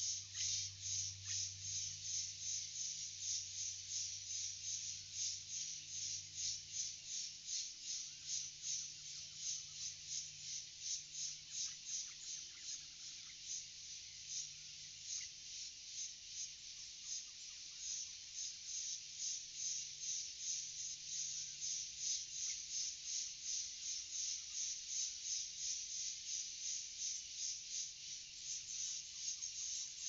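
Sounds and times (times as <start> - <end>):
faint bird chirps: 0.0 - 18.6, 27.0 - 30.0.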